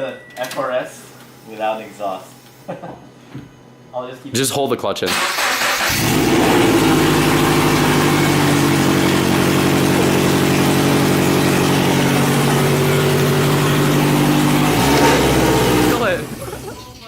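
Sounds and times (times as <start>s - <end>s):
loud car engine idling: 5.9s - 16.8s.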